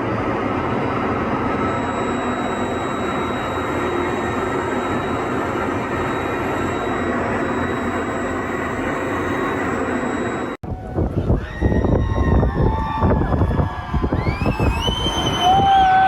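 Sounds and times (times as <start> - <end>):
faint high whine: 0.0 - 11.3
aircraft engine and rushing air: 0.0 - 11.4.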